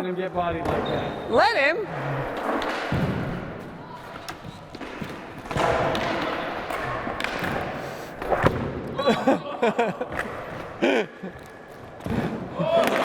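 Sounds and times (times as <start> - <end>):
people laughing: 8.9 - 11.6.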